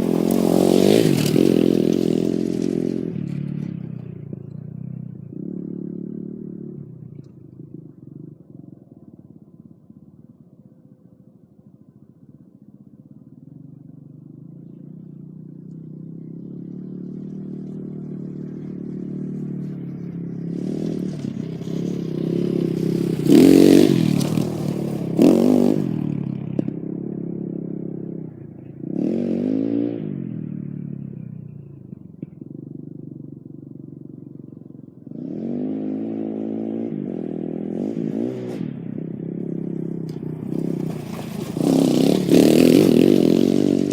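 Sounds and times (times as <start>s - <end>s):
dirt bike engine revving: 0.0s - 3.8s, 20.4s - 26.8s, 28.9s - 30.2s, 35.1s - 43.9s.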